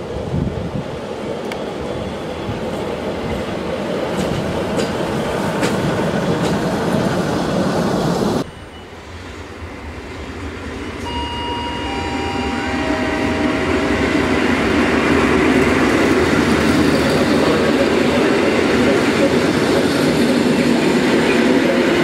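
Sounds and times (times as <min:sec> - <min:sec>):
rail trolley rumbling: 0:00.0 - 0:22.0
electric train pulling away: 0:05.2 - 0:22.0
steady high whine: 0:08.4 - 0:17.0.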